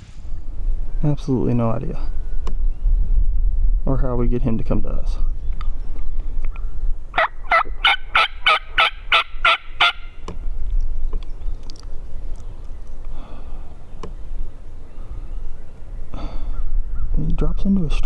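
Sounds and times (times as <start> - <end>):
turkey yelping: 6.5 - 10.2.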